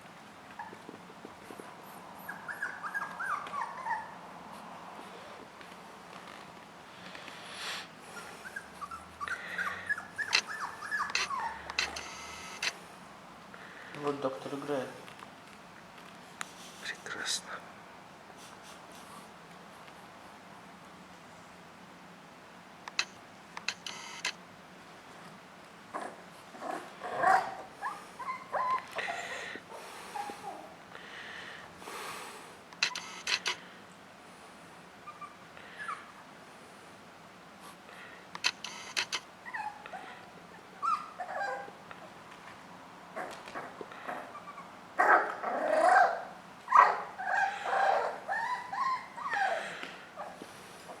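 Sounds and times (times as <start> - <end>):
puppy whining: 0.5 - 1.0, 1.8 - 4.3, 8.1 - 12.7, 25.9 - 30.8, 32.8 - 33.6, 35.0 - 36.3, 38.7 - 42.1, 43.2 - 51.0
sharp clicks: 11.1 - 12.8, 22.8 - 24.4, 32.7 - 33.6, 38.3 - 39.2.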